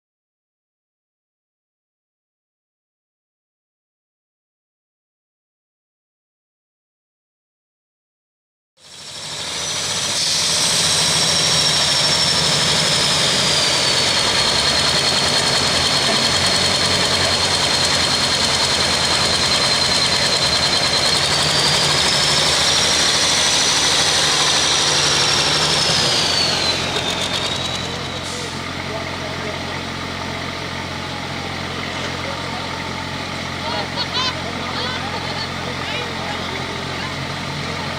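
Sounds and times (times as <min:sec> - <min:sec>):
high whine: 0:08.8 - 0:37.9
tractor diesel engine at full power: 0:08.8 - 0:37.9.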